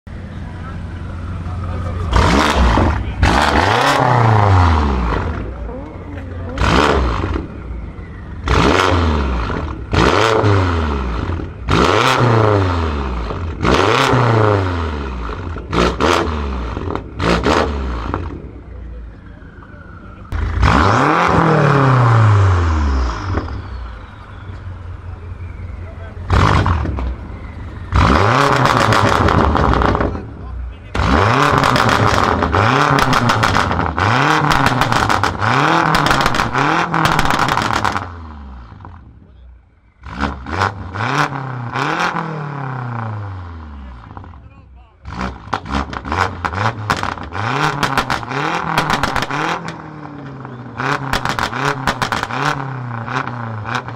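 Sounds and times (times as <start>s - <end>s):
car engine revving: 0.1s - 53.9s
exhaust pops crackling: 26.2s - 38.1s, 45.1s - 53.9s.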